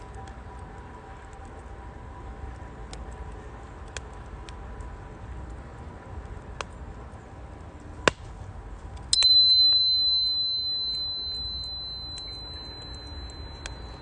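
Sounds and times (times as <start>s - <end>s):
wood fire crackling and popping: 0.0s - 9.3s
bell ringing high tone: 9.2s - 14.0s.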